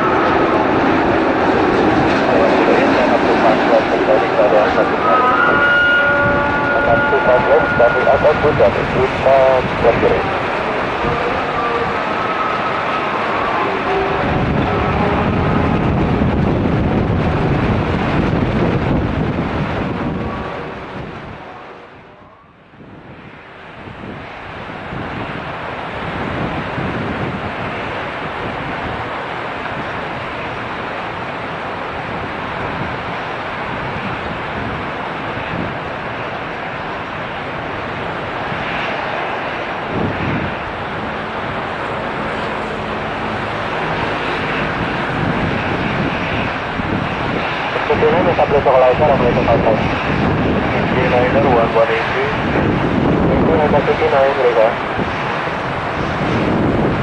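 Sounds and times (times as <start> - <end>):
wind on microphone: 0.0 - 31.3, 31.9 - 57.0
jet airliner whine: 0.0 - 57.0
heavy rain: 6.3 - 22.0.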